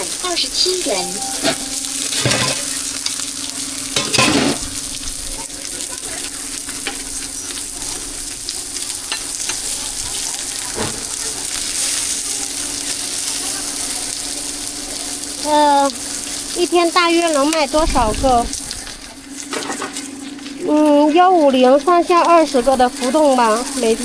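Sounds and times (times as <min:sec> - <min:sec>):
food sizzling in a pan: 0:00.0 - 0:24.0
low hum: 0:17.6 - 0:19.4.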